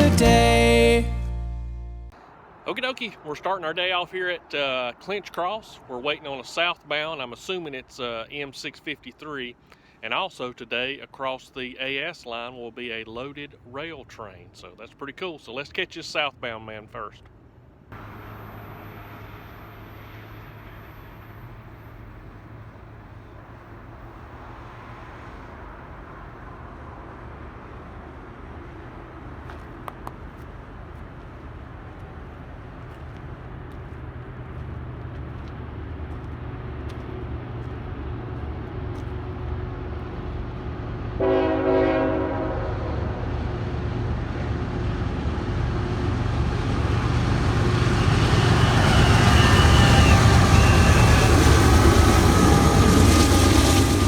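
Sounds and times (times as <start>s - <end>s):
diesel locomotive rumble: 0.0s - 2.2s, 17.3s - 54.0s
train horn blast: 41.1s - 43.6s, 47.6s - 54.0s.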